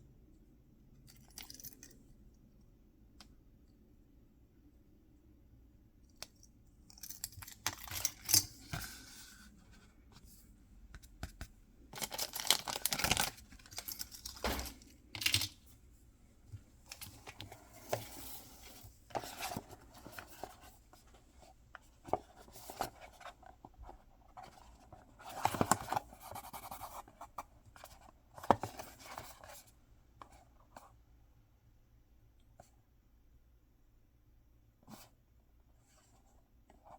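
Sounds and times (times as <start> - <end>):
packaging tearing and rustling: 12.0 - 14.8.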